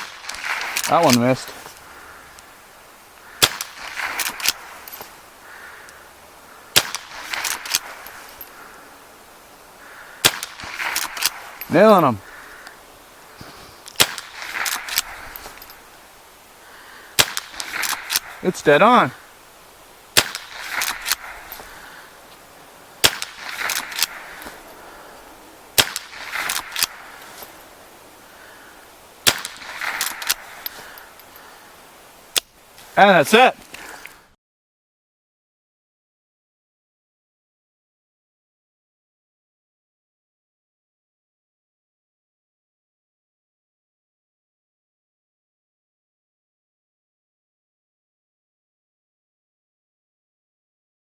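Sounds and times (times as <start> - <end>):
rifle shots: 3.4 - 4.7, 6.8 - 8.0, 10.2 - 11.3, 14.0 - 15.4, 17.2 - 18.4, 20.2 - 21.5, 23.0 - 24.6, 25.8 - 27.2, 29.2 - 30.5
rifle lever clicking: 23.1 - 24.5, 25.9 - 26.9.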